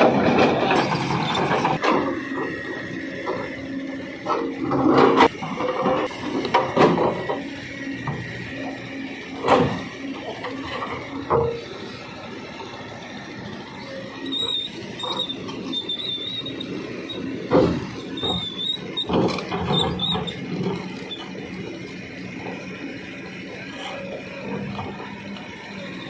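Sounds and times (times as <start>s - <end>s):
excavator machine noise: 0.0s - 26.0s
high wavering metallic squeal: 13.8s - 21.6s.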